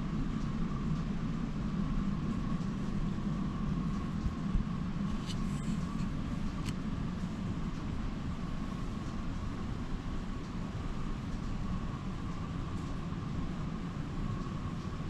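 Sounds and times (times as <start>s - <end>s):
faint motor whine: 0.0s - 15.0s
light clicks from track: 0.3s - 1.2s, 3.8s - 8.0s, 11.2s - 13.1s.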